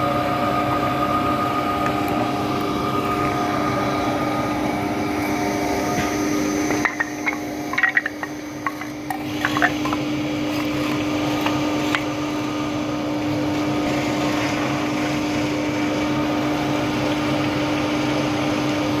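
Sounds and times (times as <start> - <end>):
wood planer running: 0.0 - 18.6.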